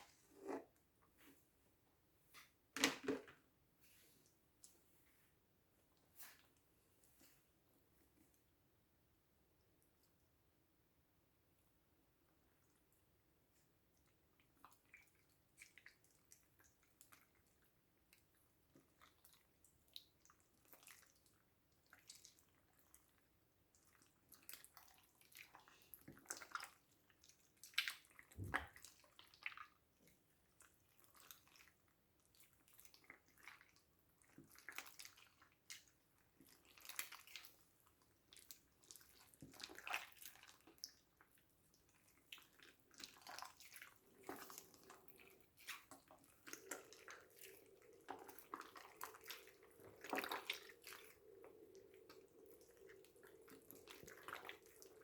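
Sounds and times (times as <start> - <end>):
slime squelching by hand: 23.7 - 55.0.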